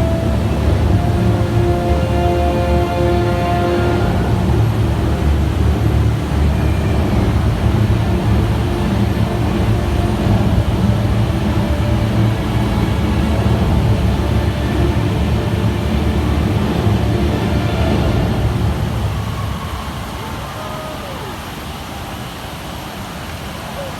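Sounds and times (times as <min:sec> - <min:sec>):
show music: 0:00.0 - 0:19.0
indoor waterfall roaring: 0:00.0 - 0:23.9.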